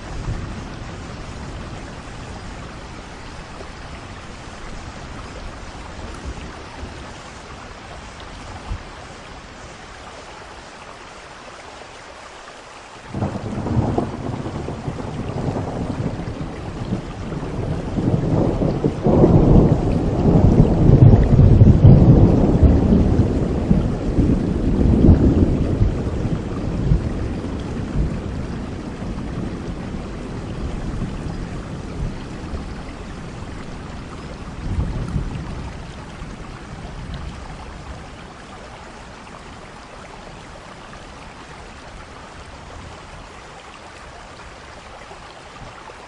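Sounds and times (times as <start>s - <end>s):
steady rain: 0.0s - 46.0s
thunder rumbling: 13.1s - 39.4s.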